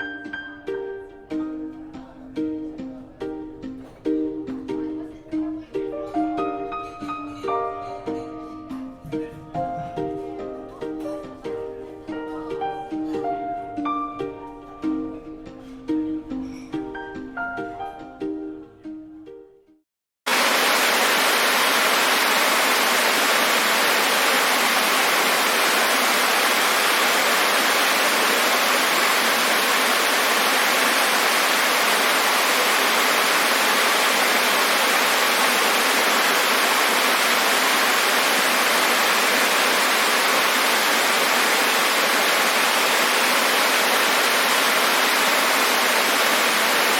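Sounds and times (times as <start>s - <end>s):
waterfall rushing: 20.3s - 46.9s.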